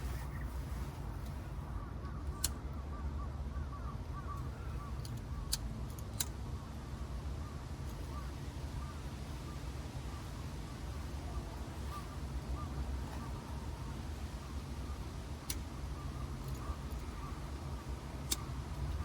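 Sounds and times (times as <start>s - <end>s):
sharp clicks: 2.0s - 2.7s, 4.4s - 6.4s, 16.4s - 19.0s.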